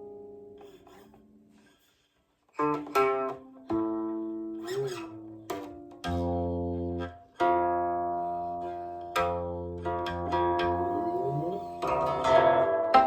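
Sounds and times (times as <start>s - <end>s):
plucked zither notes: 2.6s - 13.0s.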